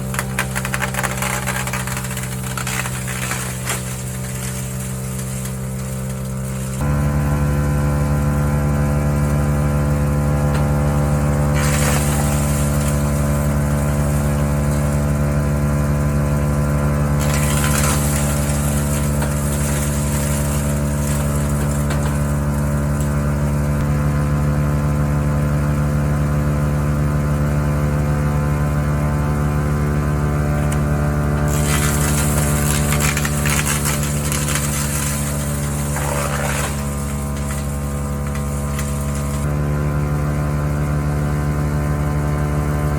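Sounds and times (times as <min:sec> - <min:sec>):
wood chipping noise: 0:00.0 - 0:06.9, 0:10.4 - 0:23.9, 0:28.8 - 0:39.6
wood chipper engine running: 0:00.0 - 0:42.9.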